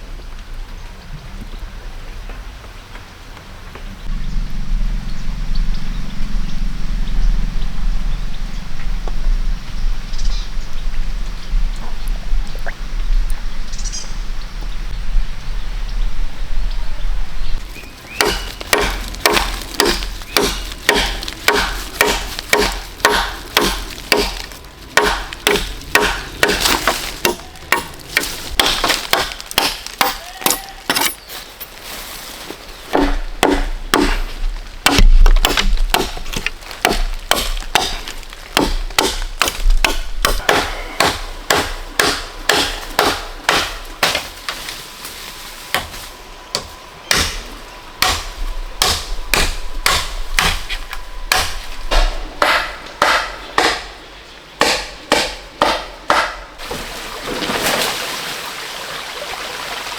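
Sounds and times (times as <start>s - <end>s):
chopping bamboo: 18.1s - 31.2s, 32.9s - 44.6s, 45.7s - 54.0s, 54.6s - 56.5s.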